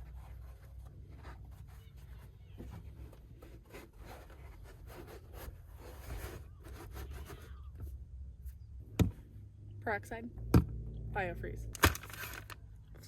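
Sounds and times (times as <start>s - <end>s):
steady low rumble: 8.2s - 13.0s.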